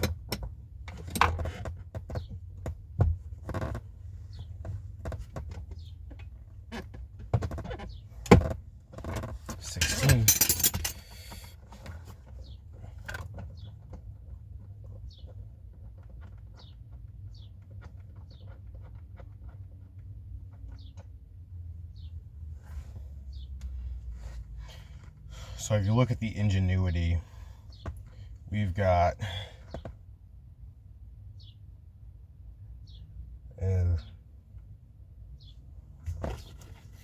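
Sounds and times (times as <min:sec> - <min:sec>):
tools clinking against metal: 0:09.7 - 0:11.2.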